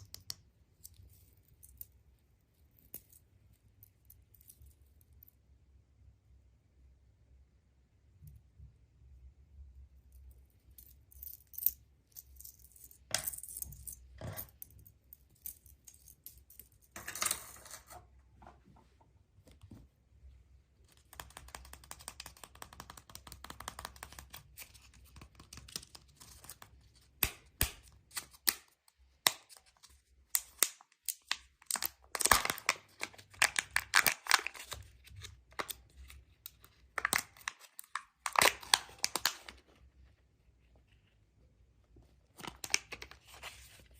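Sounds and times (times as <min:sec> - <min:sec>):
wrapping crinkling and tearing: 0:30.6 - 0:39.6.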